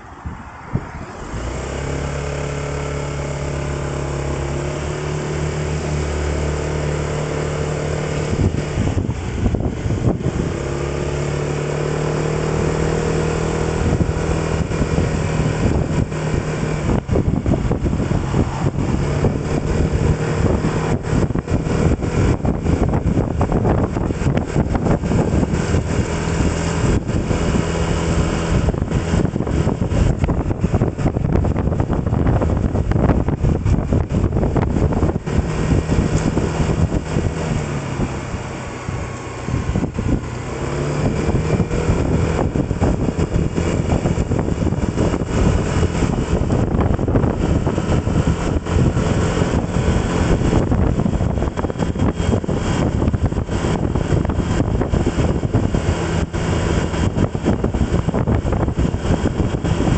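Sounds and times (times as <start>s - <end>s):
road and wind noise: 0.0s - 59.9s
vehicle engine running: 0.0s - 59.9s.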